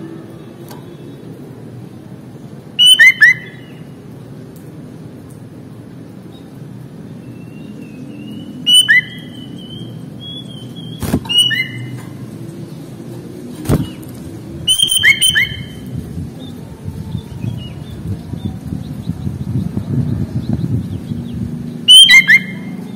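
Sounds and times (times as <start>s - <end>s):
bulbul chirping and whistling: 2.8s - 3.8s, 7.4s - 11.9s, 14.7s - 15.8s, 21.8s - 22.7s.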